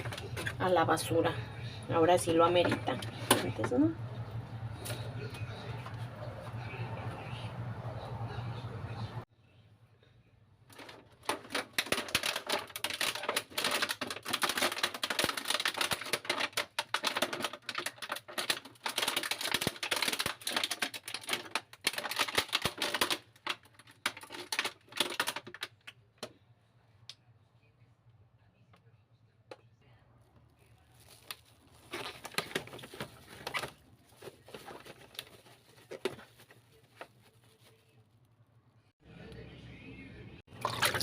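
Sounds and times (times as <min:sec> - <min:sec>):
dry scratching and crackling: 0:10.7 - 0:25.8, 0:30.2 - 0:38.9.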